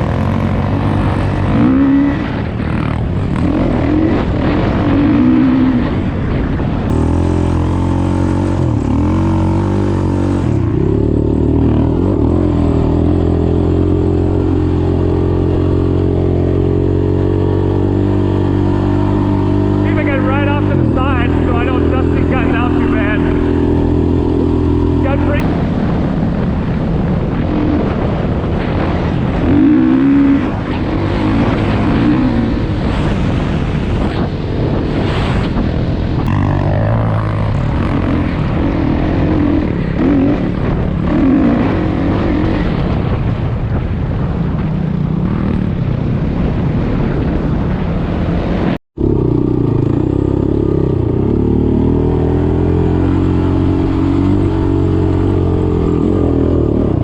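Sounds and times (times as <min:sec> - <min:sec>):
dirt bike engine revving: 0:00.0 - 0:26.2, 0:26.8 - 0:43.4, 0:48.5 - 0:57.0.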